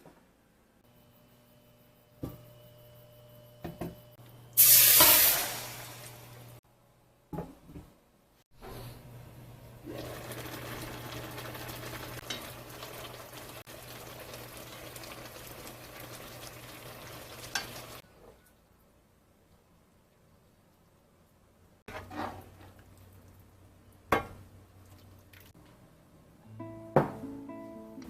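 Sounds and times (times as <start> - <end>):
food sizzling in a pan: 4.6 - 6.6, 9.9 - 18.0.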